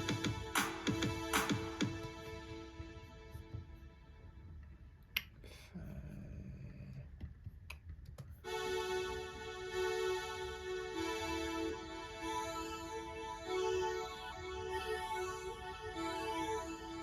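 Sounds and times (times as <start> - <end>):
sustained synth chord: 8.5 - 17.0.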